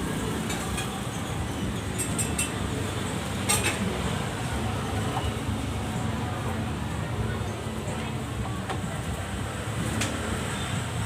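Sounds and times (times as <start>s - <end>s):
dishes and utensils clinking: 0.4s - 2.8s, 3.4s - 4.0s.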